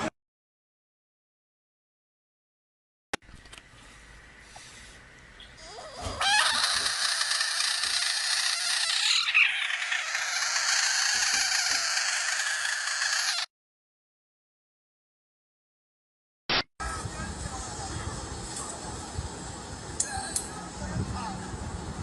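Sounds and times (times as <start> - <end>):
many overlapping animal calls: 4.6 - 13.5.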